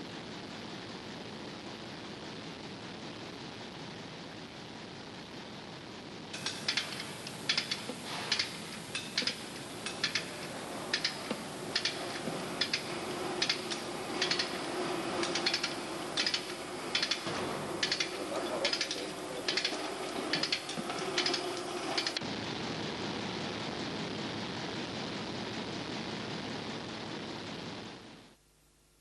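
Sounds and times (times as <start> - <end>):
ratchet spanner clicking: 6.4 - 22.2.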